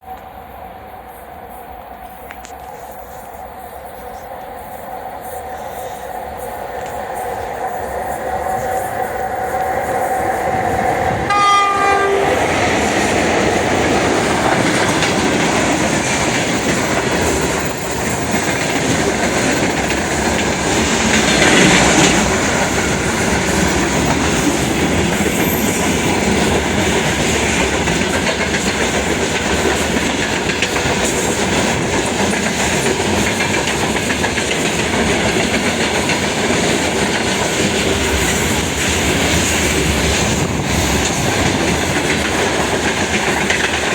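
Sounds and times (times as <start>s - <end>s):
train wheels on rails: 0.0s - 43.9s
locomotive horn blast: 11.2s - 12.5s.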